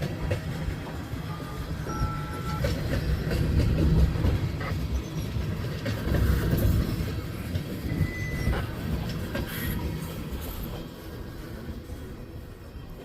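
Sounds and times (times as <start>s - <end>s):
wheels clacking over rail joints: 0.0s - 11.9s
freight train cars rolling: 0.0s - 13.0s.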